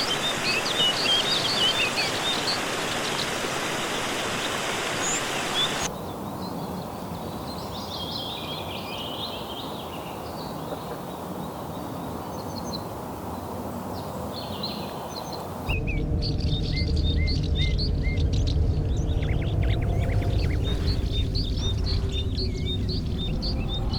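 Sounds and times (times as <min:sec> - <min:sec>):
birds chirping and calling: 0:15.7 - 0:23.9
low rumble: 0:15.7 - 0:23.9.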